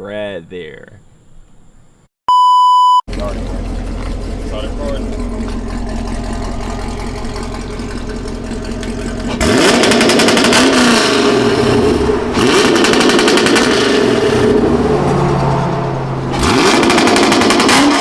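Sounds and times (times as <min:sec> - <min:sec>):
car engine idling: 0:03.1 - 0:17.9
engine on rev limiter: 0:03.1 - 0:18.0
exhaust popping and crackling: 0:03.1 - 0:18.0.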